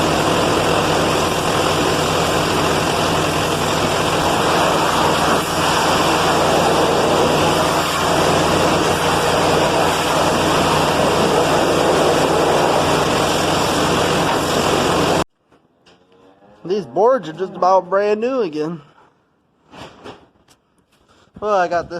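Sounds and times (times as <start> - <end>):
high-pressure spray hissing: 0.0 - 15.2
pressure washer engine drone: 0.0 - 15.3.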